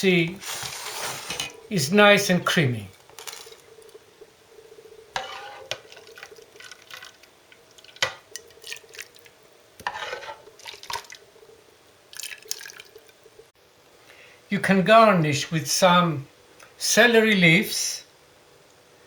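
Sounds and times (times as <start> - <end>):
utensil stirring thick soup: 5.1 - 11.2.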